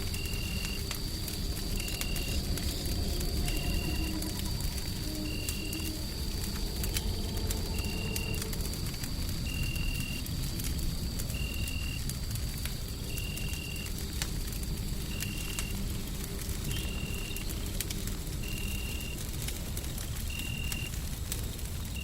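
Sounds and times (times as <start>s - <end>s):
deep white-noise rumble: 0.0s - 13.1s
wood fire crackling and popping: 0.0s - 22.0s.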